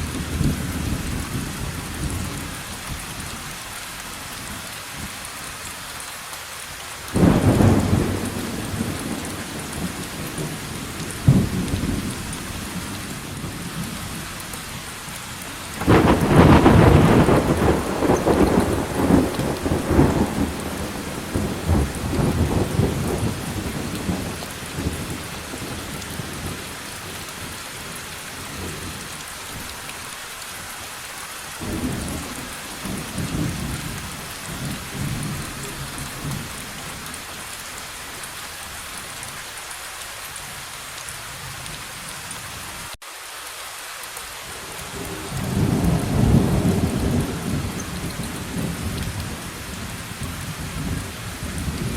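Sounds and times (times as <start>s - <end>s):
steady rain: 0.0s - 51.9s
rolling thunder: 7.2s - 14.0s, 15.8s - 26.6s, 31.6s - 37.1s, 45.0s - 51.9s.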